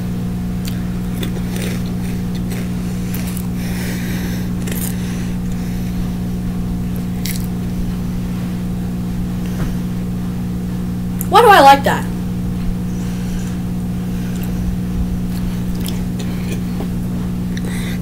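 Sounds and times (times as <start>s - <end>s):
low electrical hum: 0.0s - 18.0s
crunchy snack chewing: 0.6s - 5.9s, 6.9s - 7.6s, 15.3s - 16.9s.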